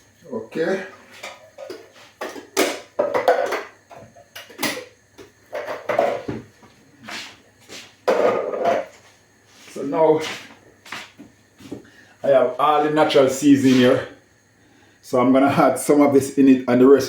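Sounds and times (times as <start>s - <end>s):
kitchen items knocking and clattering: 1.2s - 6.6s, 8.1s - 9.0s.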